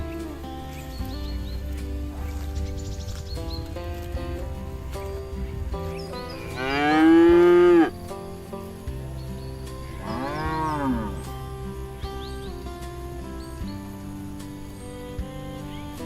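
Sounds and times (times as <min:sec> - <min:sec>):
background music: 0:00.0 - 0:16.0
cattle mooing: 0:06.4 - 0:08.0, 0:09.8 - 0:11.4.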